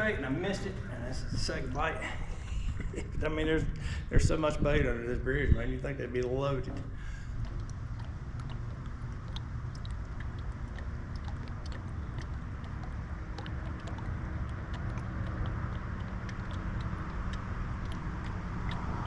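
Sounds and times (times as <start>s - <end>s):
boat motor rumbling: 0.0s - 19.0s
light ticks: 6.2s - 19.0s.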